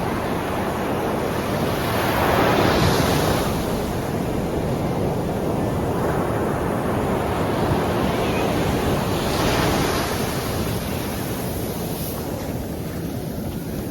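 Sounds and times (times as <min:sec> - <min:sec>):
sea surf washing ashore: 0:00.0 - 0:13.9
wind rumble on microphone: 0:00.0 - 0:13.9.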